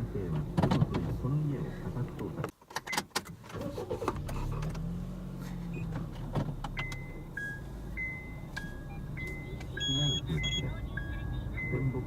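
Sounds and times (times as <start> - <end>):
two-tone electronic beeps: 6.8 - 12.0.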